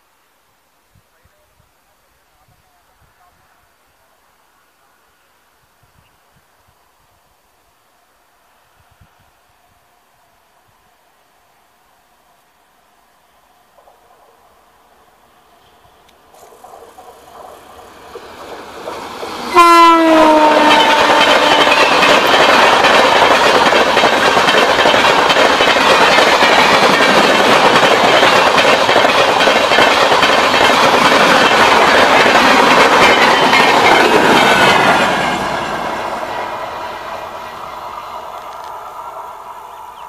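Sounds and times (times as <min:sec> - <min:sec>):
wheels rushing on rails: 0:13.7 - 0:40.0
train horn blast: 0:19.5 - 0:22.1.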